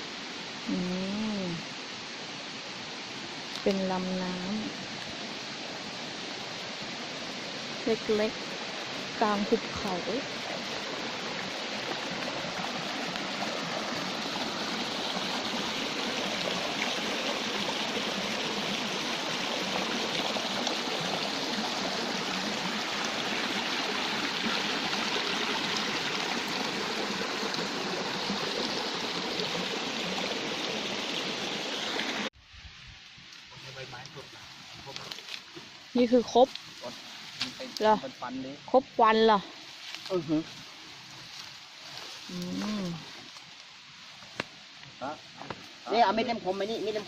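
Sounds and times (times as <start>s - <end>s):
waterfall water rushing: 4.6s - 32.3s, 43.7s - 47.0s.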